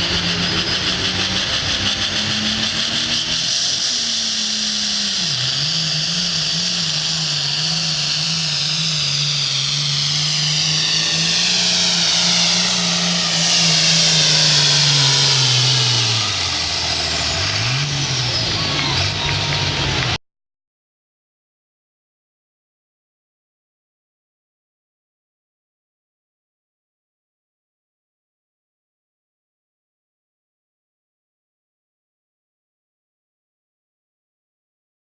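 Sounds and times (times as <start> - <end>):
high whine: 0.0 - 20.2
tractor engine under load: 0.0 - 20.2.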